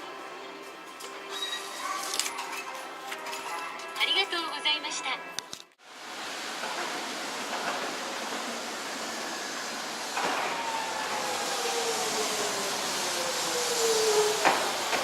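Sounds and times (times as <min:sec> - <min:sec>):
streetcar rumbling: 0:05.8 - 0:15.0.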